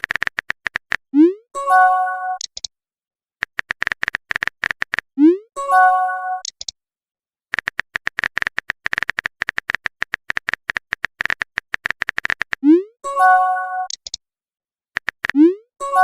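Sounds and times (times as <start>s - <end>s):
phone keyboard typing clicks: 0.0s - 1.0s, 2.4s - 2.7s, 3.4s - 5.1s, 6.4s - 6.7s, 7.5s - 12.7s, 13.8s - 14.2s, 15.0s - 15.4s
rising pop sound effect: 1.2s - 2.4s, 5.2s - 6.4s, 12.6s - 13.9s, 15.3s - 15.6s.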